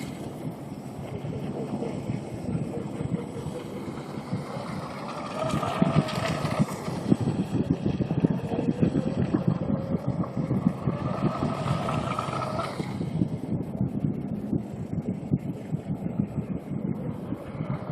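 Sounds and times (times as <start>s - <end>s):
rough crackle: 3.5s - 7.5s.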